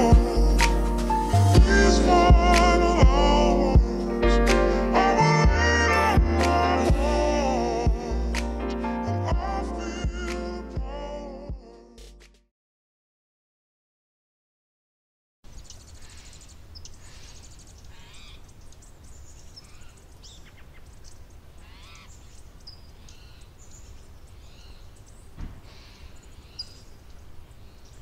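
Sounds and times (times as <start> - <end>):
steady low rumble: 0.0 - 12.2
birds calling and chirping: 15.5 - 28.0.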